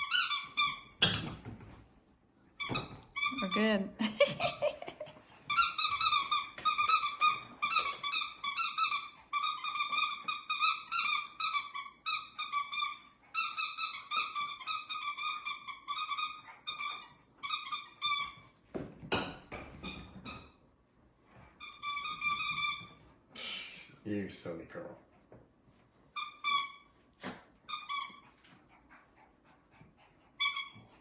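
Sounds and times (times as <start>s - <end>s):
squeaky dog toy squeaking: 0.0s - 1.2s, 2.6s - 4.6s, 5.5s - 18.5s, 19.8s - 20.6s, 21.6s - 23.0s, 26.2s - 27.0s, 27.7s - 28.3s, 30.4s - 30.9s.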